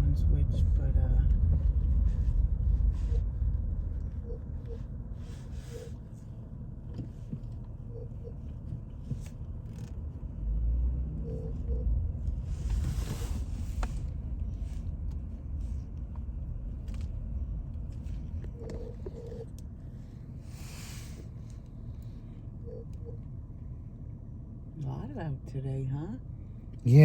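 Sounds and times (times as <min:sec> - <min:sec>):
car rumble from inside cabin: 0:00.0 - 0:27.0.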